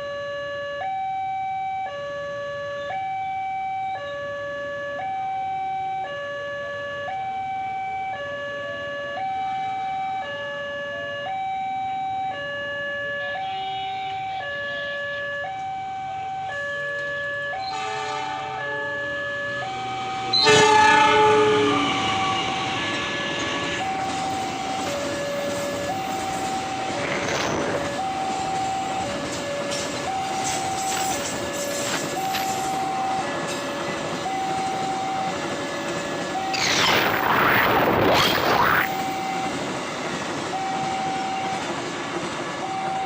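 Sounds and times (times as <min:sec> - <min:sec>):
two-tone crossing alarm: 0:00.0 - 0:43.0
train horn: 0:13.2 - 0:15.2, 0:17.6 - 0:19.1, 0:20.3 - 0:23.9.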